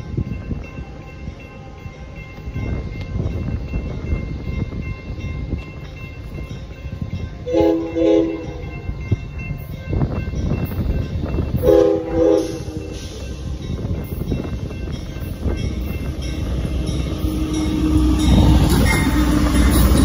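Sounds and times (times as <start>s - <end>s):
passenger train rumbling: 0.0s - 20.0s
locomotive horn blasts: 7.4s - 8.8s, 11.6s - 13.0s.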